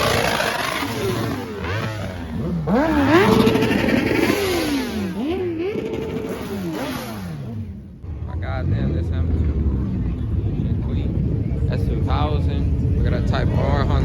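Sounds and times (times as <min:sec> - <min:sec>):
vehicle engine revving hard: 0:00.0 - 0:09.8.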